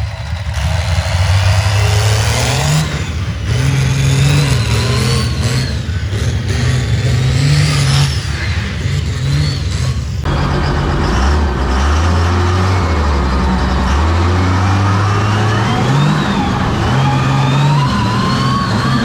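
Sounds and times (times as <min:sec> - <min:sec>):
high whine: 0:00.0 - 0:19.0
truck engine revving: 0:00.0 - 0:19.0.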